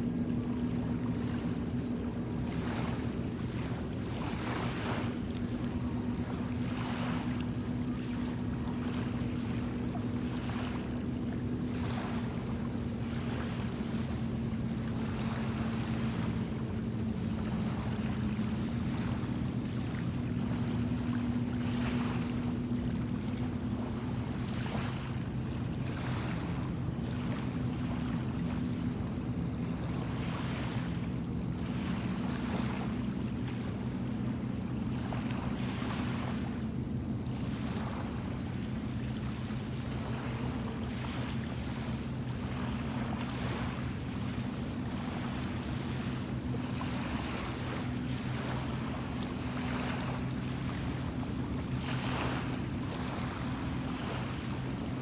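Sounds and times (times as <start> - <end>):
low engine drone: 0.0 - 55.0
waves splashing against shore: 37.4 - 55.0.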